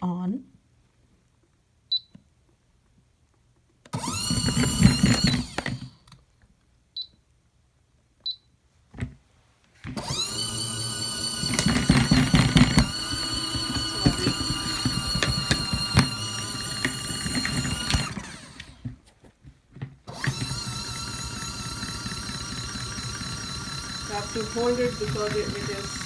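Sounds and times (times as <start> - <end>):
washing machine spin motor whine: 4.0 - 6.0, 10.0 - 18.9, 20.1 - 26.0.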